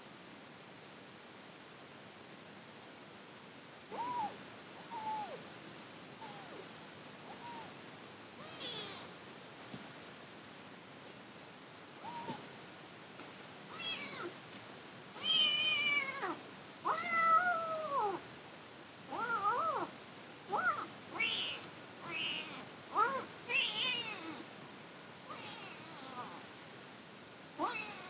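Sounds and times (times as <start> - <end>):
kitten meowing: 3.9 - 5.4, 6.2 - 6.6, 7.3 - 7.7, 8.4 - 9.1, 12.0 - 12.4, 27.6 - 28.0.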